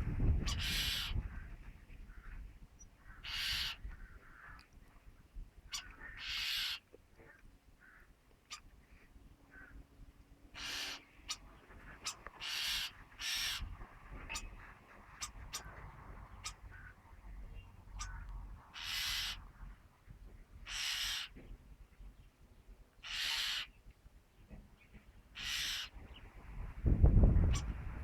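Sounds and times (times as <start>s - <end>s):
starling wheezing calls: 0.5s - 1.2s, 3.2s - 3.8s, 5.7s - 6.8s, 10.6s - 16.9s, 18.0s - 19.5s, 20.6s - 21.4s, 23.0s - 23.7s, 25.4s - 25.9s.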